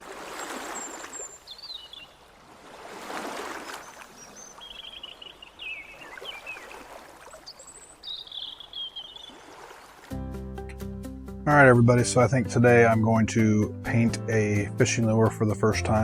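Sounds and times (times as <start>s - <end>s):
water splashing: 0.0s - 10.3s.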